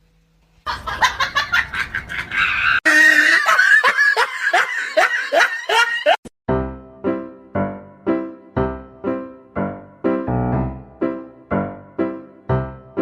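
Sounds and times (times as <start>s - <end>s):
laughter in bursts: 0.7s - 6.3s.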